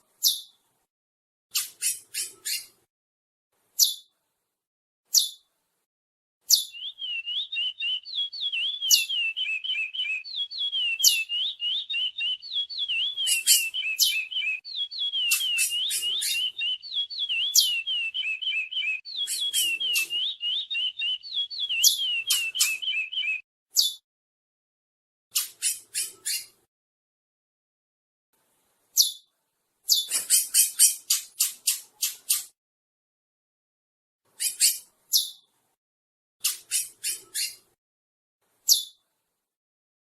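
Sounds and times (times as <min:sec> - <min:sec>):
finch singing fast warbling: 0:06.5 - 0:24.0.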